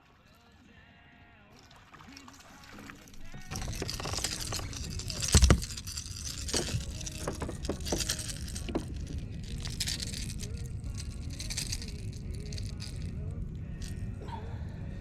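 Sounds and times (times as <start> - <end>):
handling clicks and rattles: 2.2 - 14.0
steady low rumble: 3.3 - 15.0.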